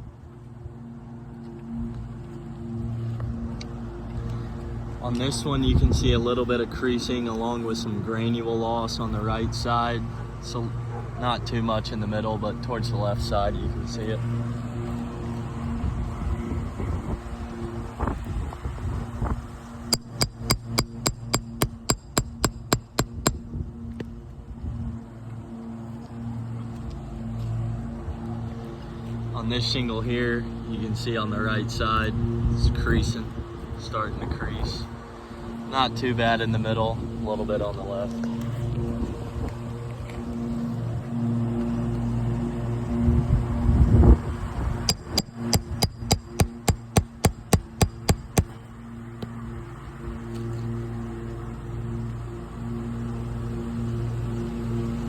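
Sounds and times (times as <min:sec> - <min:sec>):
steady low hum: 0:13.6 - 0:25.5
hammer tapping steel nail puller: 0:19.9 - 0:23.4, 0:44.9 - 0:48.5.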